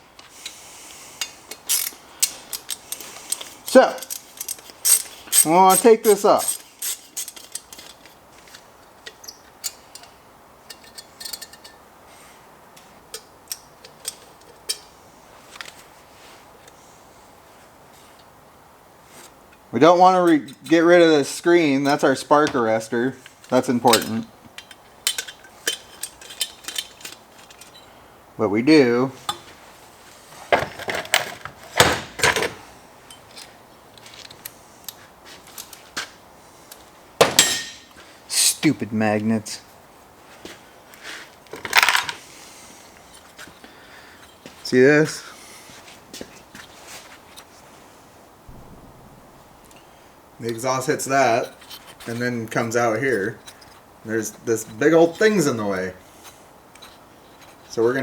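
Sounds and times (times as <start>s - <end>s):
clicks and taps of metal parts: 1.2s - 5.8s, 6.4s - 11.8s, 12.8s - 14.9s, 23.2s - 27.8s.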